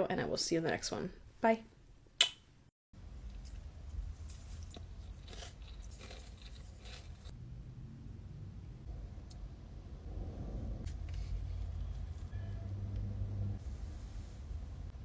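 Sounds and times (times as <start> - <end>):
crunchy food being chewed: 3.3 - 7.3
low rumble: 7.2 - 15.0.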